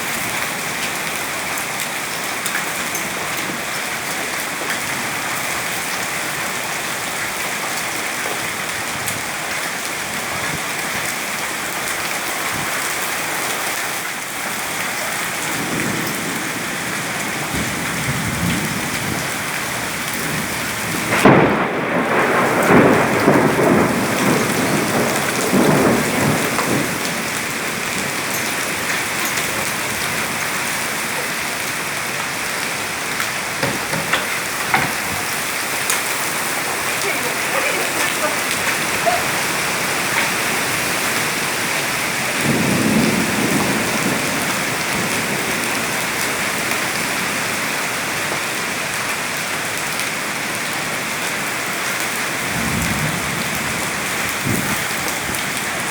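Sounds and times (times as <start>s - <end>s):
heavy rain pouring: 0.0s - 55.9s
low thunder rumble: 15.2s - 47.2s, 52.4s - 55.9s
sharp thunderclap: 15.4s - 30.8s, 42.1s - 46.9s, 52.4s - 55.9s.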